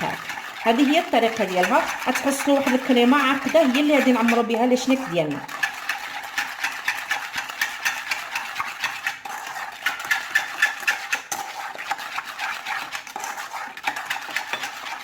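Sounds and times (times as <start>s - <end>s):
metal utensil stirring in a bowl: 0.0s - 15.0s.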